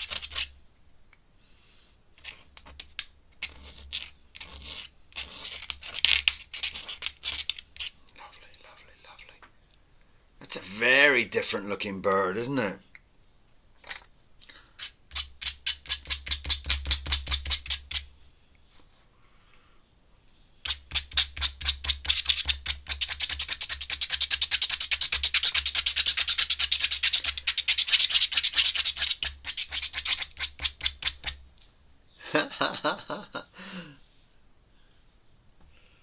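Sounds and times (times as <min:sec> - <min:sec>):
pen scribbling on paper: 0:03.4 - 0:07.5, 0:21.0 - 0:31.3.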